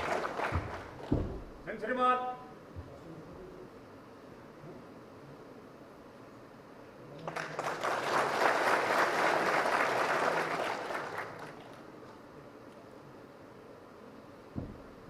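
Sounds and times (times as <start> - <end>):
audience applauding: 0.0 - 1.2, 7.2 - 11.9.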